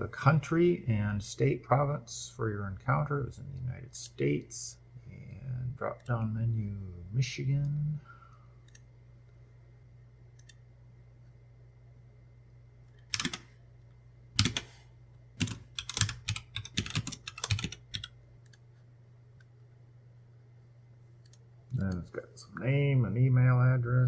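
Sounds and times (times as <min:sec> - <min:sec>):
faint low hum: 0:00.0 - 0:24.0
typing on a keyboard: 0:13.1 - 0:13.5, 0:14.4 - 0:14.8, 0:15.4 - 0:18.1.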